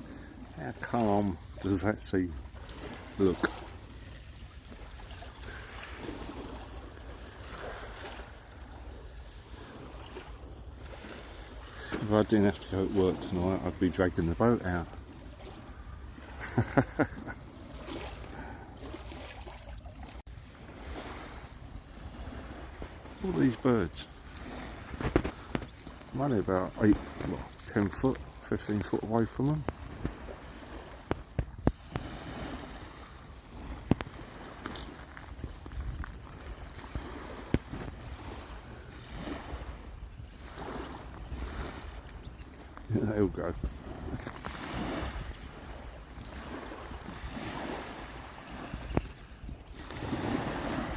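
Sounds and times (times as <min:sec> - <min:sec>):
calm sea washing: 0:00.0 - 0:50.9
wind rumbling on microphone: 0:24.2 - 0:50.9.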